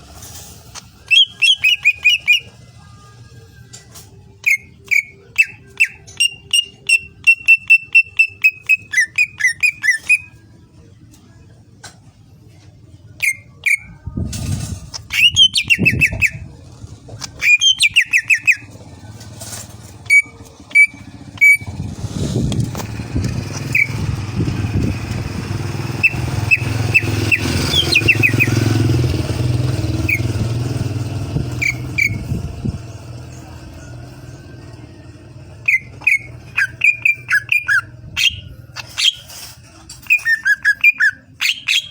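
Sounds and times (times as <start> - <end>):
low engine rumble: 0.0 - 41.4
bird singing whistled notes and trills: 1.0 - 2.6, 4.4 - 10.4, 13.2 - 14.0, 15.0 - 16.5, 17.4 - 18.9, 19.8 - 21.8, 22.9 - 29.0, 29.6 - 39.3, 40.0 - 41.9.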